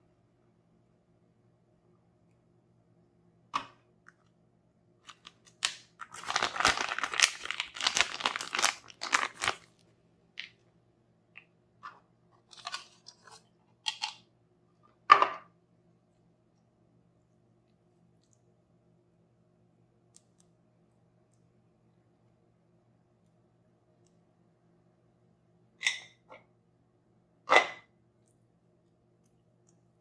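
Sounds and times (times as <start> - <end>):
plastic packaging crackling: 5.1 - 10.5.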